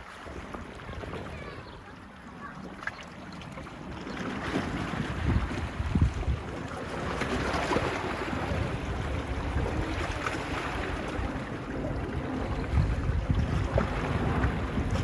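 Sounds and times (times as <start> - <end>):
waves washing on beach: 0.0 - 15.0
wind buffeting microphone: 0.3 - 15.0.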